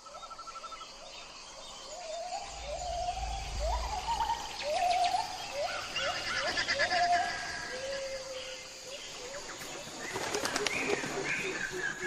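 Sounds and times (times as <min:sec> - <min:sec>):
low rumble: 0:02.1 - 0:05.9.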